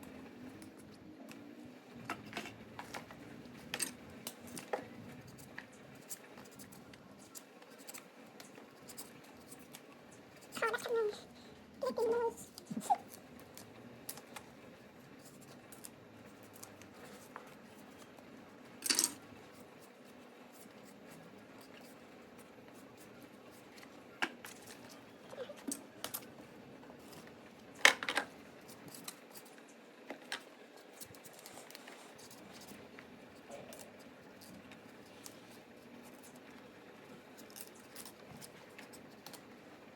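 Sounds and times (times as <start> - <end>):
objects clicking and scraping: 2.0 - 9.8, 18.8 - 19.2.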